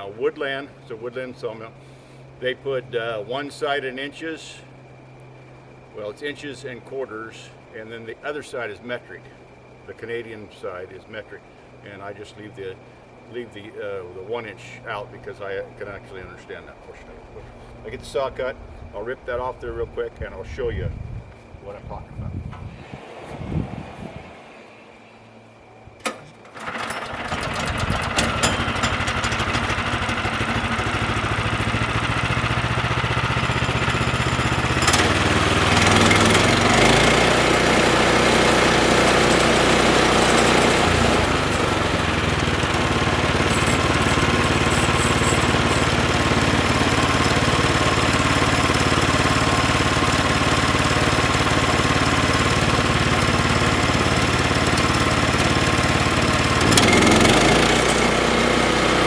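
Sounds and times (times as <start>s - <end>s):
small gas engine running: 26.4s - 59.0s
band saw blade cutting log: 34.8s - 47.5s, 53.0s - 59.0s.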